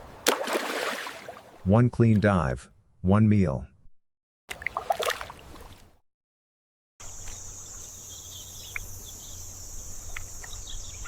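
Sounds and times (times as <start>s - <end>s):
insects droning: 7.0s - 11.0s
bird chirps: 7.1s - 11.0s.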